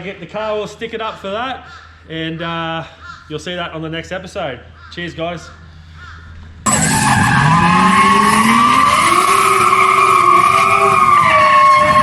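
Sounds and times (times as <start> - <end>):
car engine revving: 6.7 - 12.0
tyre screech: 6.7 - 12.0.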